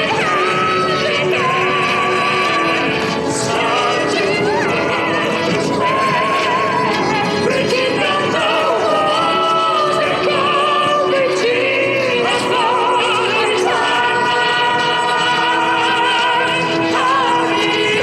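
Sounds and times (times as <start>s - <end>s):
person singing with vibrato: 0.0s - 18.0s.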